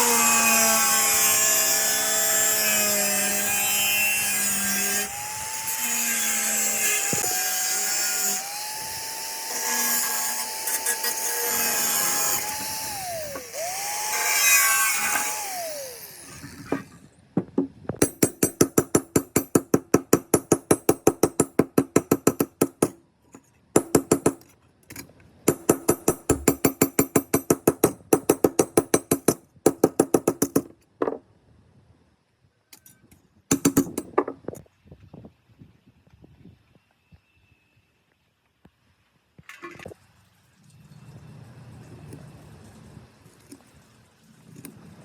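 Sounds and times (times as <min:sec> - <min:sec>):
hammer tapping on metal: 0:17.6 - 0:23.0, 0:23.8 - 0:24.5, 0:25.5 - 0:31.2, 0:33.5 - 0:34.4.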